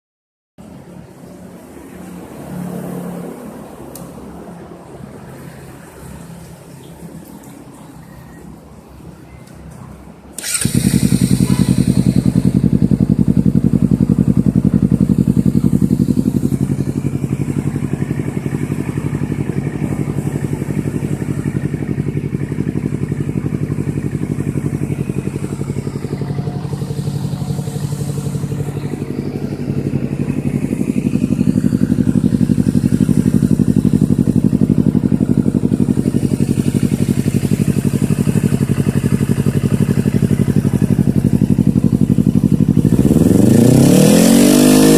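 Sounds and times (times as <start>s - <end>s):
motorcycle engine idling: 10.4s - 44.9s.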